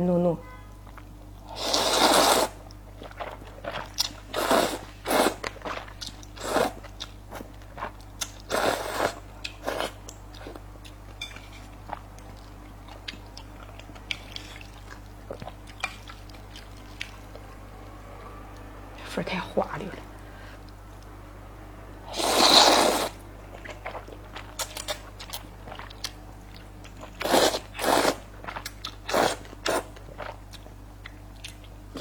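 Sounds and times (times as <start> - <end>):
wet chewing: 0.9 - 11.0, 22.2 - 32.0
slurping noodles: 1.5 - 2.6, 3.2 - 5.8, 6.4 - 6.8, 8.5 - 10.0, 22.1 - 23.2, 27.2 - 28.3.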